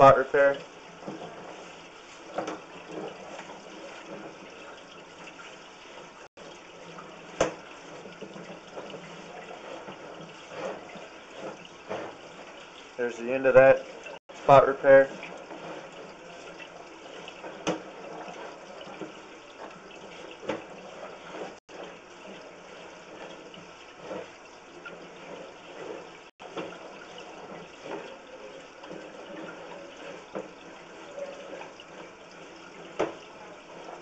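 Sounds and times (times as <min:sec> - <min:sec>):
water rushing in a sewer: 0:00.0 - 0:34.0.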